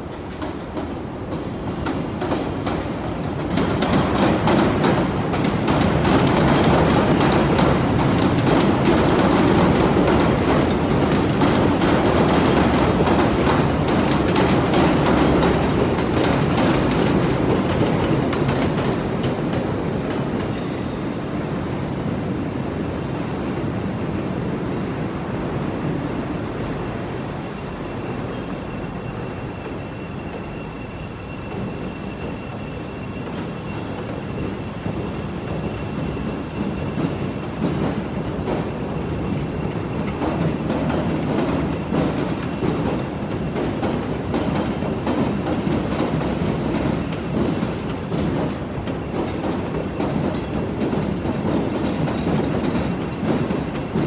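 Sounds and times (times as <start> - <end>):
train wheels clattering on track: 0.0 - 21.5, 25.8 - 54.0
high wheel squeal: 27.4 - 37.5.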